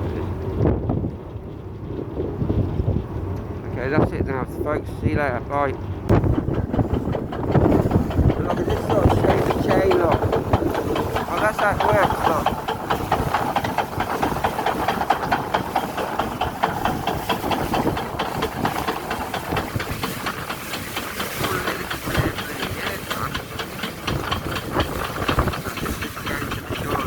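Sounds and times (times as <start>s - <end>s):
machinery noise: 3.6s - 27.0s
chain rattling and clanking: 6.1s - 22.5s.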